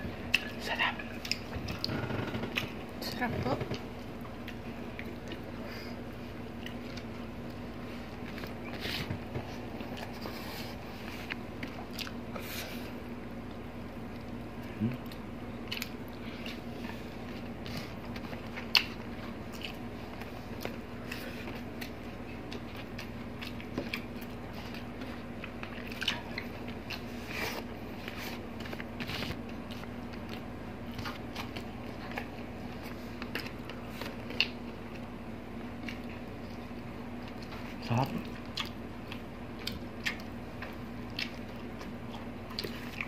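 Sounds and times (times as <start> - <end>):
people chewing and biting food: 0.0 - 43.0
food crunching: 13.5 - 43.0.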